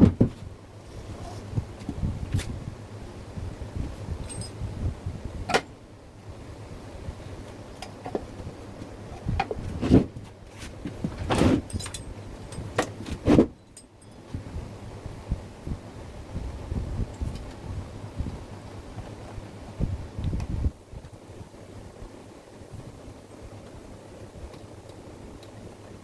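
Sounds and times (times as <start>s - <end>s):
objects knocking and clinking: 4.2s - 4.6s.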